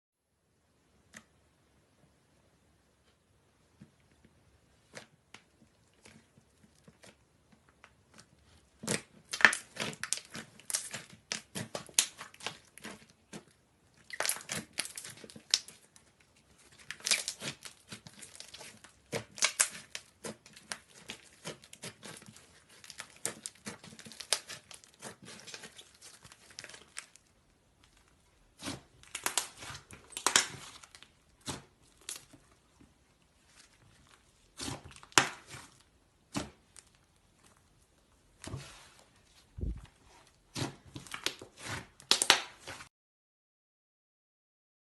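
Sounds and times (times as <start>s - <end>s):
slime crackling and popping: 6.0s - 38.0s, 40.5s - 42.9s.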